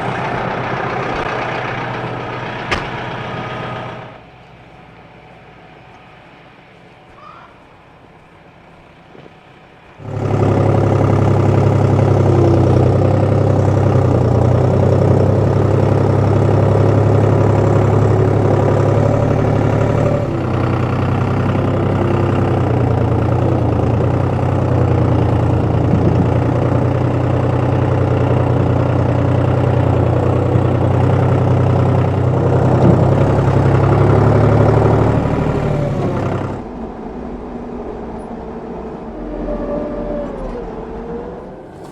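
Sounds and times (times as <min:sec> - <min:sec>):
motor humming: 0:00.0 - 0:41.9.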